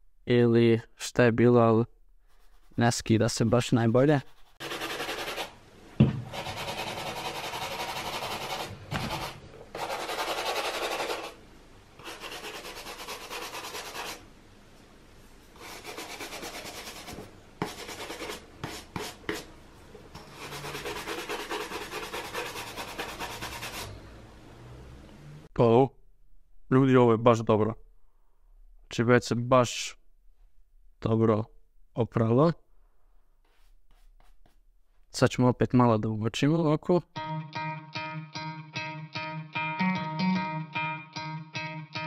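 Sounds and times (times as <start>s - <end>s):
wet brush scrubbing a sneaker: 20.4s - 23.8s.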